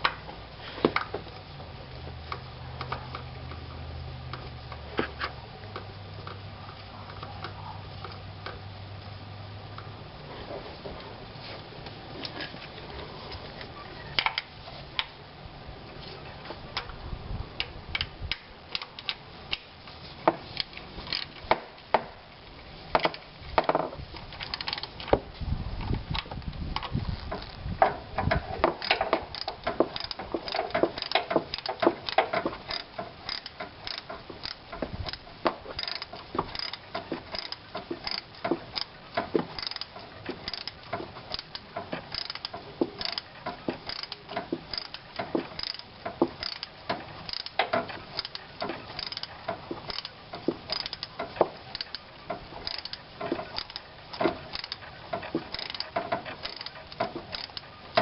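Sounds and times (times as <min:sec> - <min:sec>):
ratchet wrench clicking: 0:24.4 - 0:24.9, 0:28.3 - 0:58.0.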